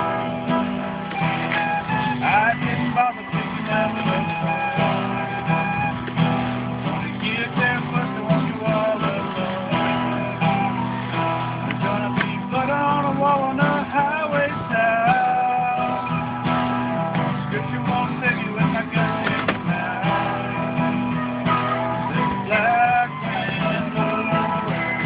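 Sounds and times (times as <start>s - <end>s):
acoustic guitar strumming: 0.0s - 25.0s
recorder melody: 0.0s - 25.0s.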